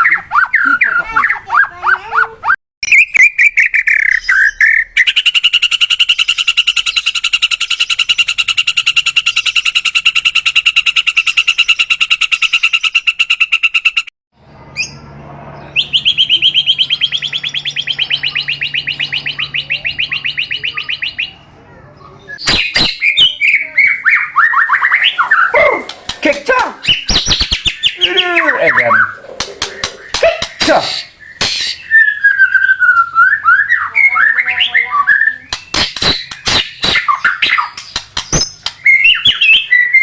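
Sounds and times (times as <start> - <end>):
songbird singing trills: 0.0 - 14.1, 14.7 - 25.7.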